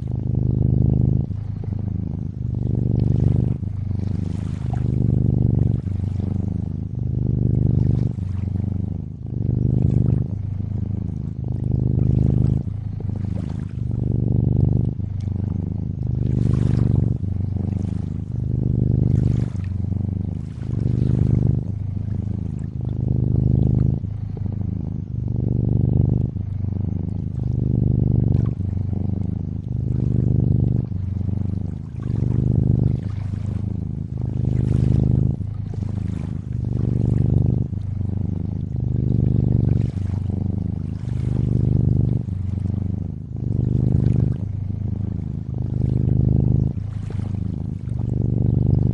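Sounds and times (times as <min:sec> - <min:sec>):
cat purring: 0:00.0 - 0:48.9
water lapping: 0:00.0 - 0:48.9.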